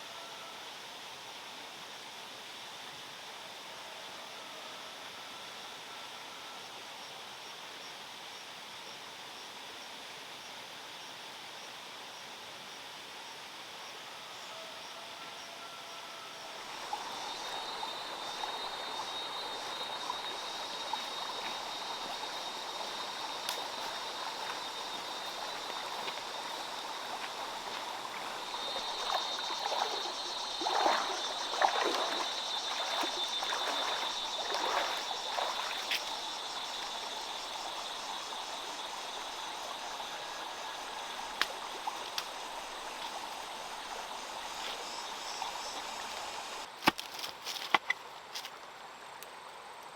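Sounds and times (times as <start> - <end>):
water running over stones: 16.6 - 46.7.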